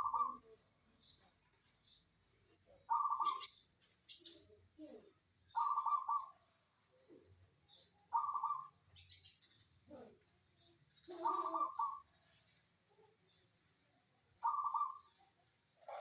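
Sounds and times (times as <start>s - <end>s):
dove cooing: 0.0s - 0.6s, 2.7s - 3.5s, 5.6s - 7.5s, 8.1s - 8.8s, 11.1s - 12.4s, 14.4s - 16.0s
high bird chirps: 14.4s - 15.2s.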